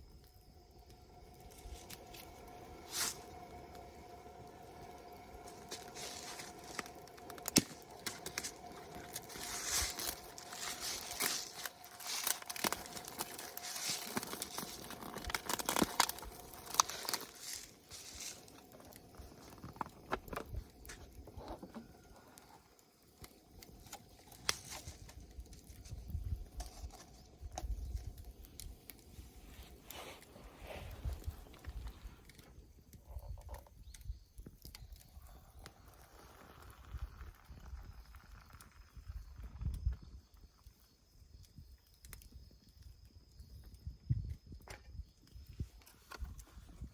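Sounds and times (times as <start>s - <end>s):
rustling and crinkling handling: 5.0s - 32.6s.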